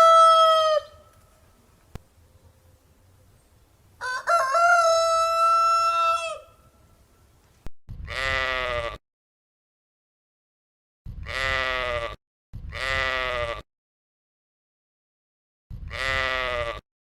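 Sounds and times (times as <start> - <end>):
rooster crowing: 0.0 - 1.1, 4.0 - 6.7
sheep or goat bleat: 8.0 - 9.0, 11.2 - 13.6, 15.8 - 16.8.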